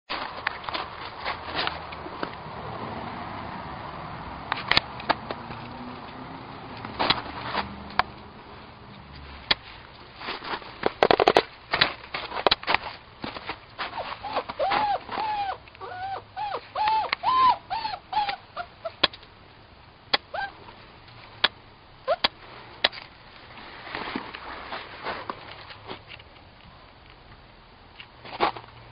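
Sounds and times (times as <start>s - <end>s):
puppy whimpering: 13.9s - 19.0s, 20.3s - 20.6s, 22.0s - 22.3s.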